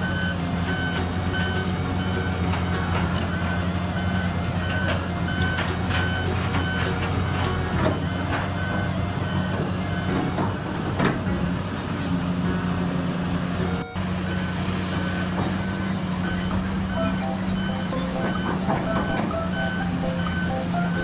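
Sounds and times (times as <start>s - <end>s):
backup alarm beeping: 0.0s - 10.4s, 13.8s - 21.0s
heavy diesel machinery running: 0.0s - 21.0s.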